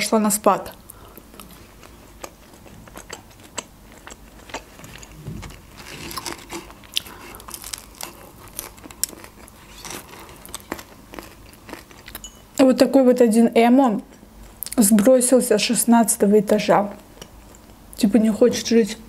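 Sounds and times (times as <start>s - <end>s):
crunchy chewing of bread: 0.9s - 12.3s.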